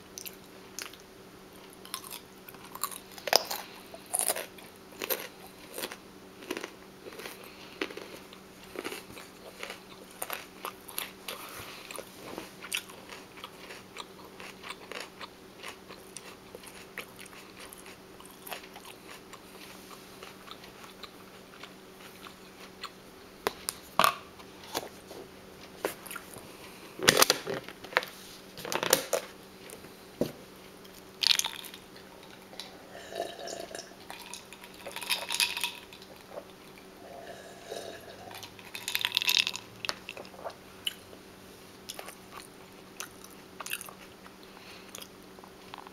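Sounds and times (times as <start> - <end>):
chewing crunchy food: 0.1 - 30.0, 30.7 - 41.1, 41.8 - 45.9.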